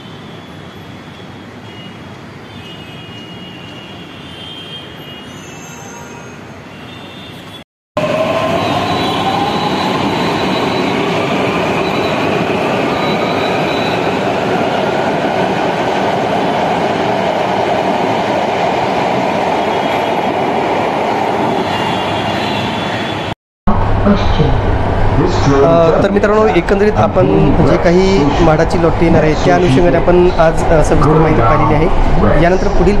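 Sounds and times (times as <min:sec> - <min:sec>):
train rumbling and hissing: 0:08.0 - 0:33.0.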